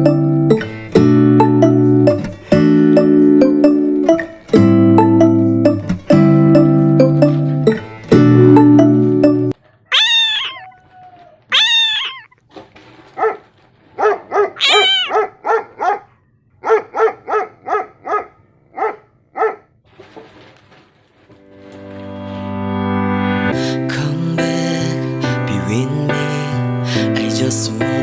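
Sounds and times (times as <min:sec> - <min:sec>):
music: 0:00.0 - 0:09.6, 0:21.3 - 0:28.0
dog barking: 0:09.6 - 0:10.8, 0:11.5 - 0:12.3, 0:13.1 - 0:19.8
dog whining: 0:09.7 - 0:12.4, 0:14.4 - 0:15.3.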